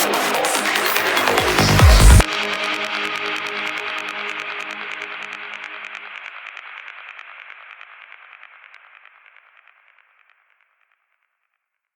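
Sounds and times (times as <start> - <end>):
pulsing electronic dance music: 0.0 - 6.5.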